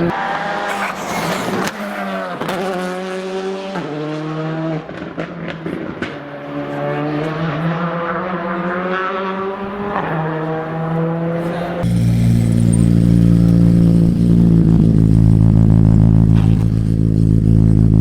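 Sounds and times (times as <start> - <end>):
rally car engine revving: 0.0 - 18.0
sharp exhaust cracks: 11.8 - 18.0.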